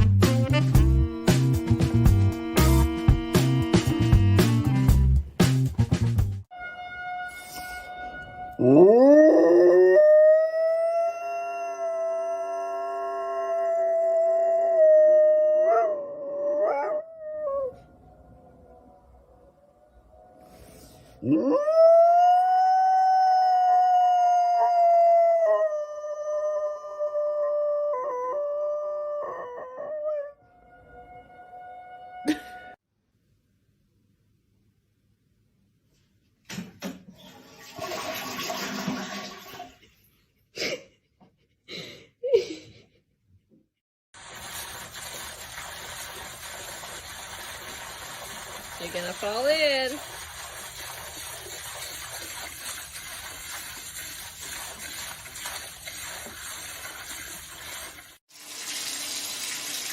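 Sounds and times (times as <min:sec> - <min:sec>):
dog howling: 0:08.6 - 0:19.1, 0:21.2 - 0:30.4
water rushing steadily: 0:44.2 - 0:57.6.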